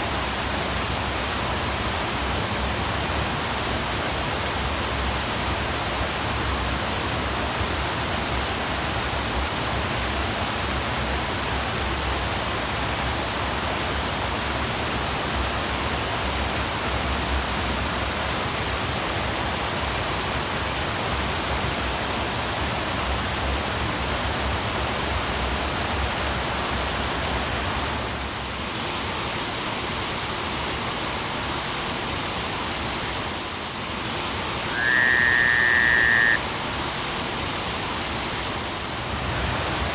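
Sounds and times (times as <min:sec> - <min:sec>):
waterfall rushing: 0:33.5 - 0:39.9.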